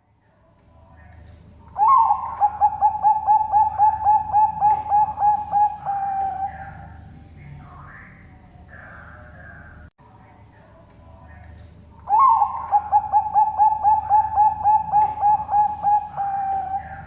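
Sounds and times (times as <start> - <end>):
dove cooing: 1.6 - 7.0, 12.0 - 17.0.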